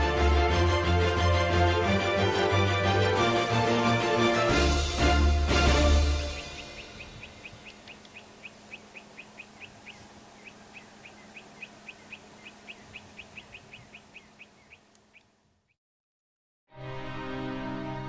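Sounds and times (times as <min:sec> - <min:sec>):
bird chirping: 0:06.2 - 0:15.8
faint steady hum: 0:06.4 - 0:15.7.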